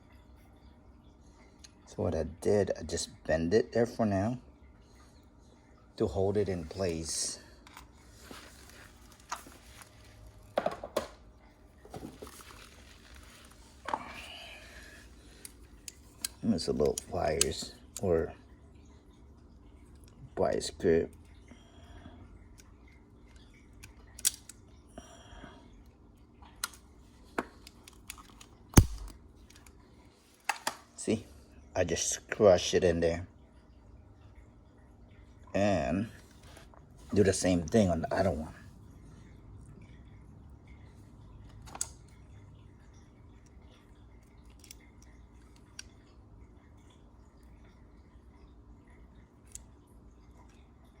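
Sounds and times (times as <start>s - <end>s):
pliers crimping metal clicks: 28.8s - 29.1s.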